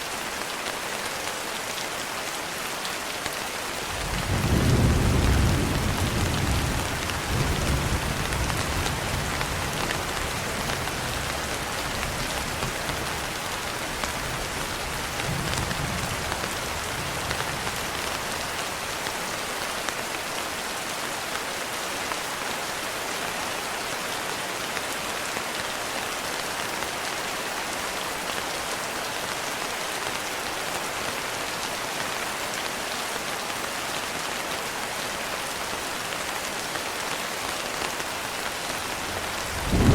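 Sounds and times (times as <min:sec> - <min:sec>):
steady rain: 0:00.0 - 0:39.9
thunder rumbling: 0:39.0 - 0:39.9.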